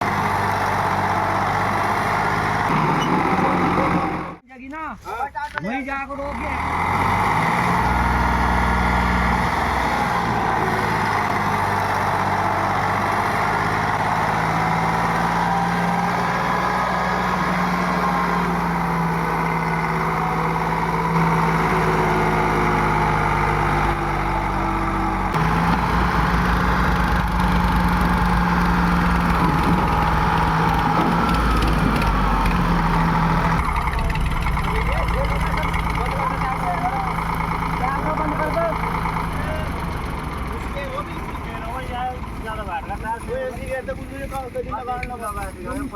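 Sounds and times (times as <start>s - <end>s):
tractor diesel engine running: 0.0s - 4.4s, 6.2s - 45.9s.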